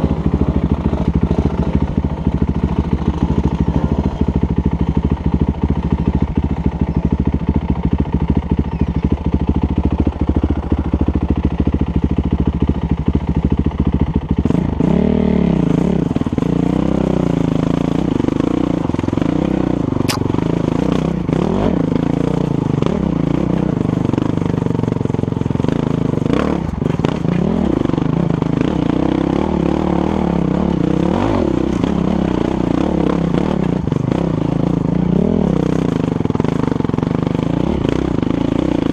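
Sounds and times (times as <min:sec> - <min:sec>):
dirt bike engine revving: 0:14.3 - 0:38.9.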